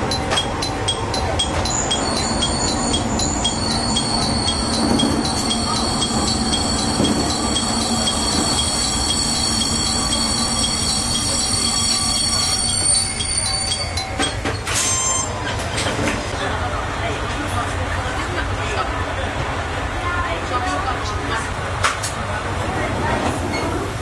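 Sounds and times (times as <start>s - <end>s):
railcar rumbling: 0.0s - 24.0s
wheel and brake squeal: 1.7s - 15.5s.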